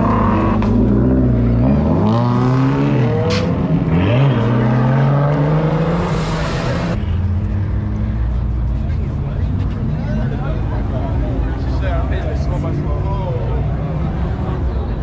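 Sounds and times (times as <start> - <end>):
car engine revving: 0.0 - 8.5.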